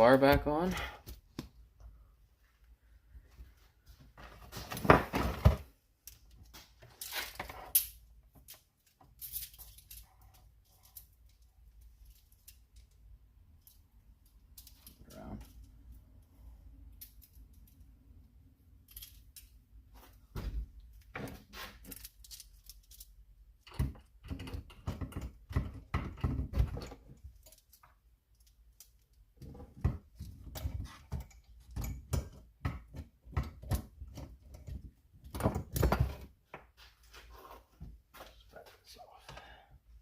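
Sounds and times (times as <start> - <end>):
metal clinks and rattles: 21.8 - 24.8.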